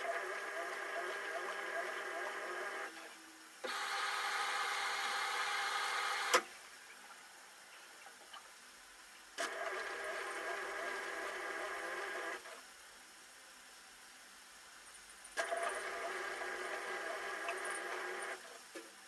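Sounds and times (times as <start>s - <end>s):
washing machine motor whining: 3.6s - 6.4s, 9.4s - 12.4s, 15.4s - 18.4s.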